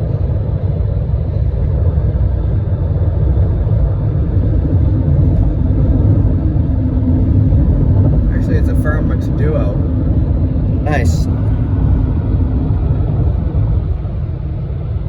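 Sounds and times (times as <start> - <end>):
road and wind noise in car: 0.0 - 15.0.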